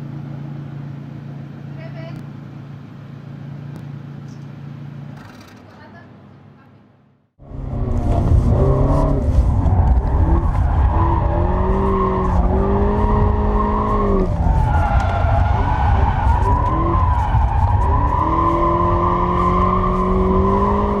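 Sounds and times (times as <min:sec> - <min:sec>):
car engine and exhaust running hard: 0:07.4 - 0:21.0.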